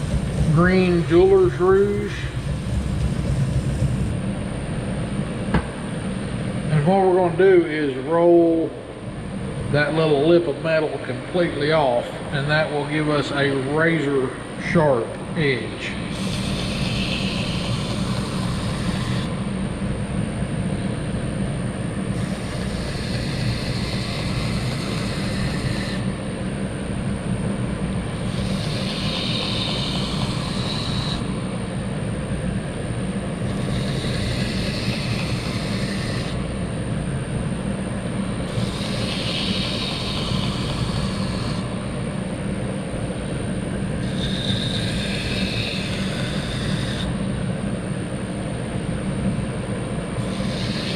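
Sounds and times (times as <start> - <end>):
belt grinder running: 0.0 - 4.1, 16.0 - 19.4, 22.1 - 26.2, 28.1 - 31.7, 33.4 - 36.6, 38.3 - 42.1, 43.9 - 47.3, 50.2 - 50.9.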